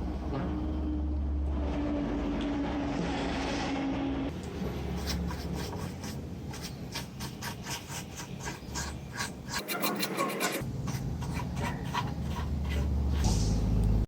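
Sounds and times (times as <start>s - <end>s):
scratchy scrubbing strokes: 4.9s - 13.3s.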